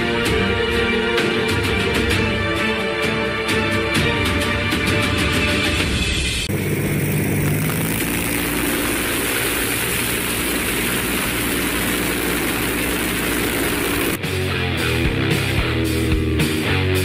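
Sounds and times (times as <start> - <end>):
engine running: 6.4 - 17.0.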